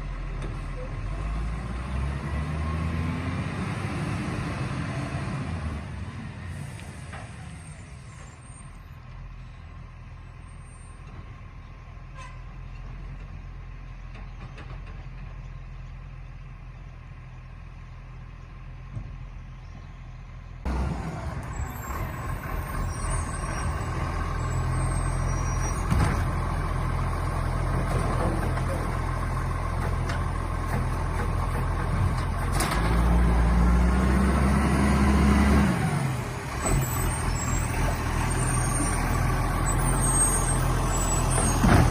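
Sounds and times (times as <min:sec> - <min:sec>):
engine revving: 0:01.1 - 0:06.0, 0:31.6 - 0:38.2.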